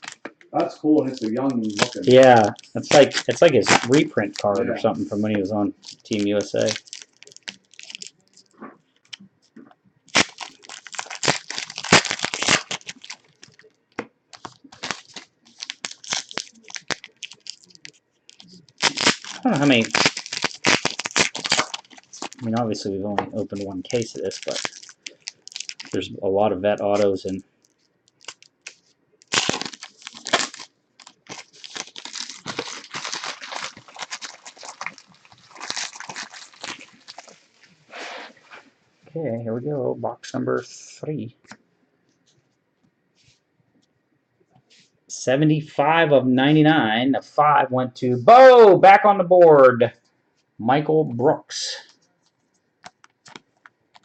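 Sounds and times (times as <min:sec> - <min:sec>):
plastic wrappers tearing and crinkling: 0:00.0 - 0:00.4, 0:01.0 - 0:09.2, 0:10.1 - 0:26.1, 0:26.8 - 0:37.8, 0:52.8 - 0:54.0.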